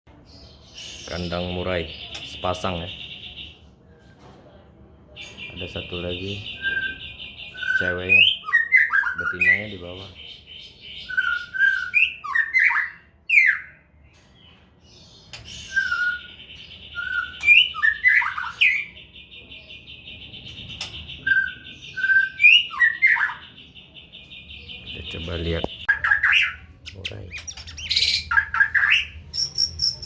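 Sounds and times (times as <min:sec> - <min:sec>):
bird singing whistled notes: 0:05.4 - 0:09.9, 0:10.6 - 0:13.8, 0:15.3 - 0:30.0.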